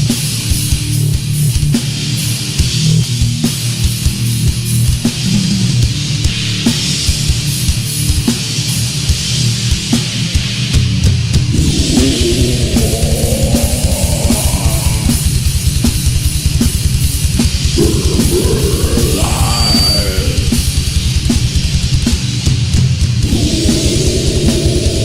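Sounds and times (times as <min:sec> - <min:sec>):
heavy metal music: 0:11.3 - 0:25.0.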